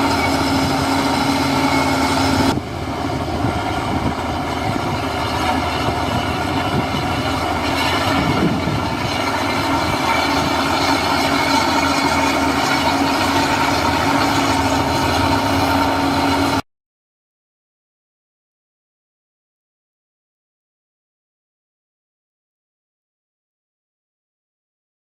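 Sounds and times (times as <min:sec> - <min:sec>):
heavy diesel engine droning: 0:00.0 - 0:16.6.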